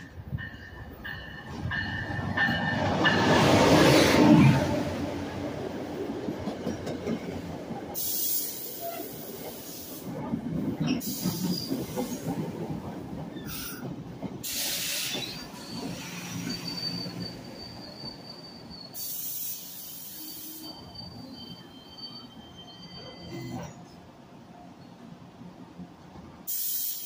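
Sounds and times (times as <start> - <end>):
train wheels rumbling: 0.0 - 23.0
high steady brake squeal: 14.5 - 23.8
short bursts of hissing: 19.0 - 20.7, 26.5 - 27.0.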